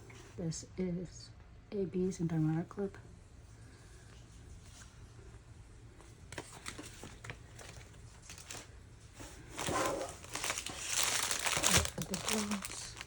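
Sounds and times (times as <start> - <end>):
plastic packaging rustling: 6.1 - 13.0
plastic packaging crinkling: 6.3 - 13.0.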